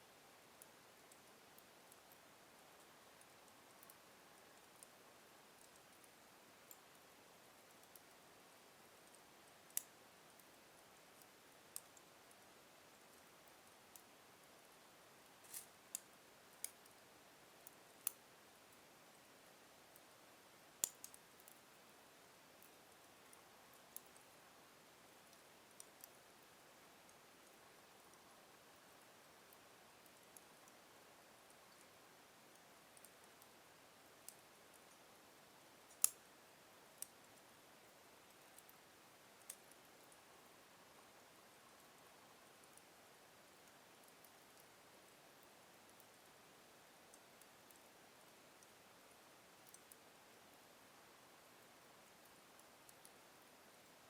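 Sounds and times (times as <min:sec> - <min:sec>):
faint steady hiss: 0:00.0 - 0:54.0
log fire crackling and popping: 0:15.3 - 0:17.0, 0:35.9 - 0:36.2, 0:49.6 - 0:49.9
logs crackling and popping: 0:35.9 - 0:36.2.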